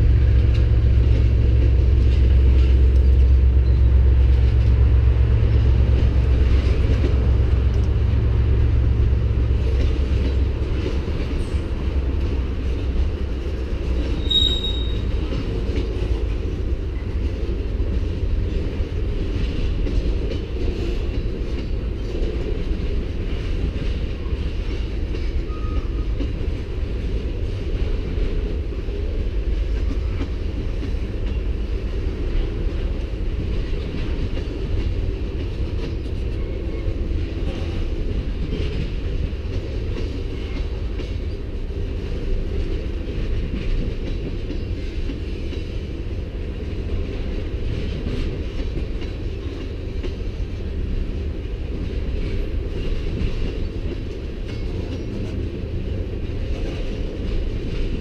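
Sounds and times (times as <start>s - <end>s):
freight train wheels rumbling: 0.0s - 58.0s
brief high squeal: 14.2s - 15.1s.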